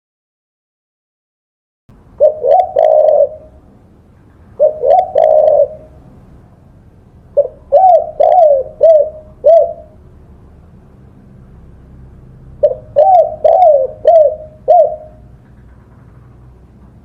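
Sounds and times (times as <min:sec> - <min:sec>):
dove cooing: 0:02.2 - 0:03.6, 0:04.5 - 0:06.2, 0:07.3 - 0:10.0, 0:12.6 - 0:15.9.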